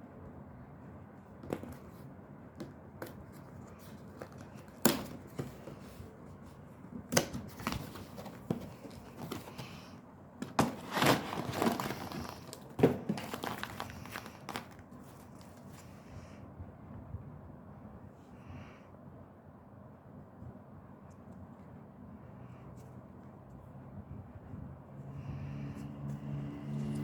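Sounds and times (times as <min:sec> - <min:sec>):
packaging crinkling and tearing: 0:10.4 - 0:15.7.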